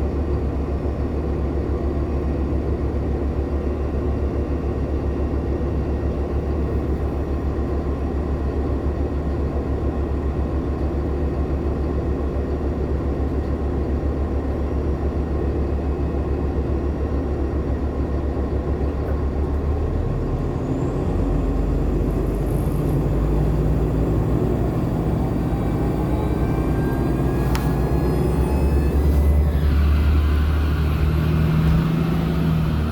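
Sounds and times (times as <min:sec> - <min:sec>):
bus drivetrain rumble: 0:00.0 - 0:32.9
faint rising tones: 0:21.2 - 0:32.9.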